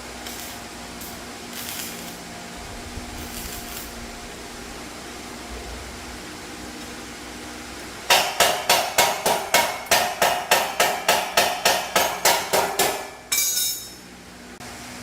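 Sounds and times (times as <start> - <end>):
hammer striking metal: 8.1 - 14.1
ringing metal clatter: 13.0 - 14.0.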